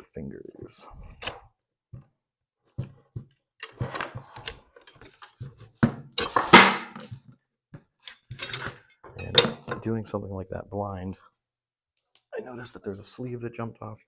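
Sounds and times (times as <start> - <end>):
steel parts clinking: 8.0 - 9.8.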